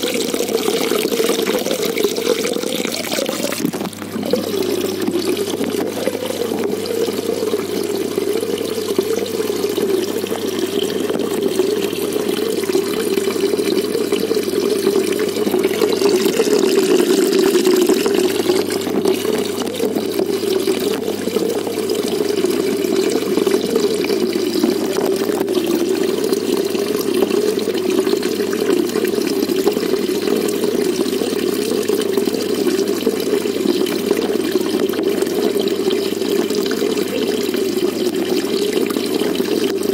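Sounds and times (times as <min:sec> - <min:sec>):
water flowing and splashing: 0:00.0 - 0:39.9.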